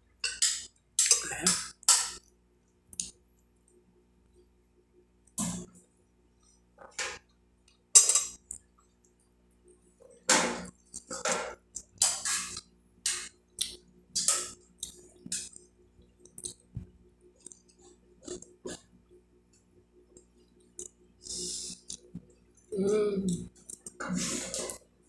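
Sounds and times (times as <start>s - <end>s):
wet chewing and lip-smacking: 2.9s - 3.2s, 13.6s - 16.8s, 20.1s - 22.7s.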